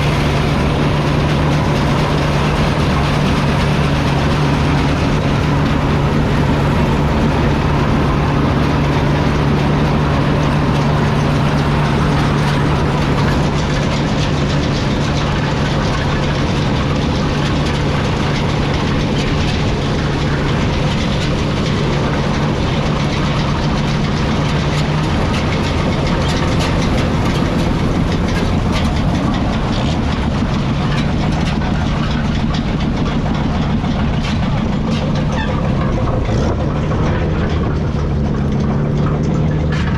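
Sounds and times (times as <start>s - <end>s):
combine harvester rattle: 0.0s - 39.9s
tractor engine drone: 0.0s - 39.9s.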